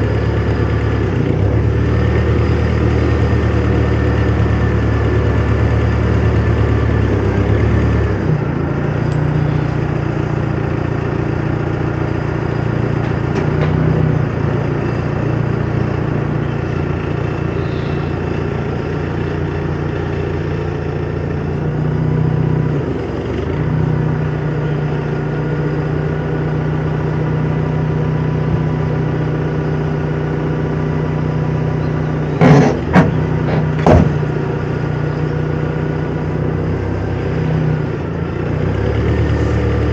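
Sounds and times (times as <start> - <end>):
vehicle engine running: 0.0 - 39.9
loud knocks: 32.4 - 34.4.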